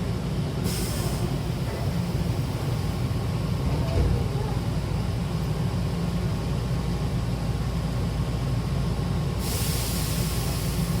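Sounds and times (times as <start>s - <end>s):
train low hum: 0.0s - 11.0s
compressed air hiss: 0.6s - 1.5s, 9.4s - 11.0s.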